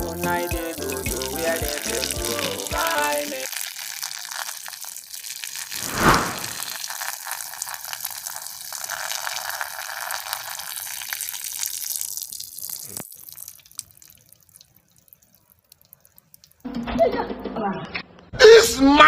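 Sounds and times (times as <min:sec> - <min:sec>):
faint drips: 0:07.4 - 0:16.7.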